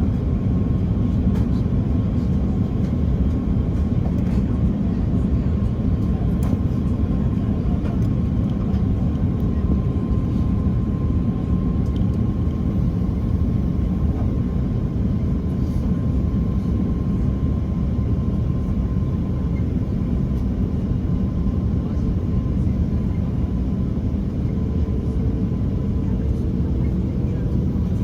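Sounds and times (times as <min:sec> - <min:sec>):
jet engine and airflow rush: 0:00.0 - 0:28.0
faint steady whine: 0:11.9 - 0:28.0.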